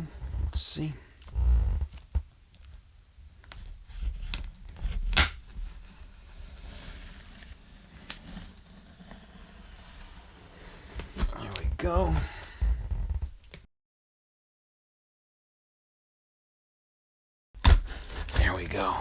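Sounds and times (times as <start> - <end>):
knife cutting packing tape: 3.9 - 8.6, 17.6 - 19.0
sharp rips and clicks: 17.6 - 19.0.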